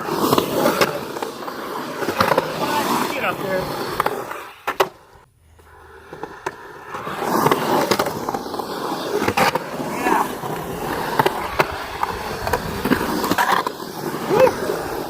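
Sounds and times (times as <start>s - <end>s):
skateboard clacking: 0.0s - 15.0s
skateboard wheels rumbling on concrete: 0.0s - 15.0s.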